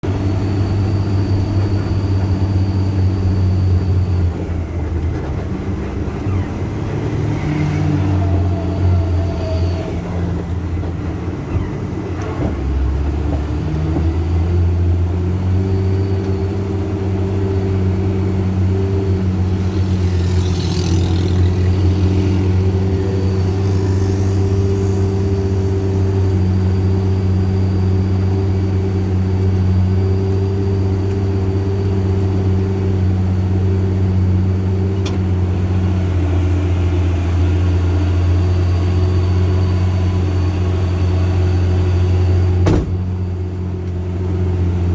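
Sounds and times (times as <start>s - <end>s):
diesel truck engine droning: 0.0s - 44.9s.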